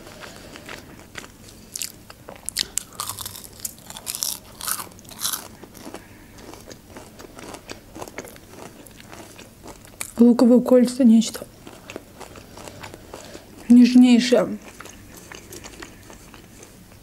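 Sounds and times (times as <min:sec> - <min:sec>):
soft chewing: 0:00.0 - 0:10.3, 0:11.3 - 0:17.0
crunching onion ring: 0:00.5 - 0:10.2.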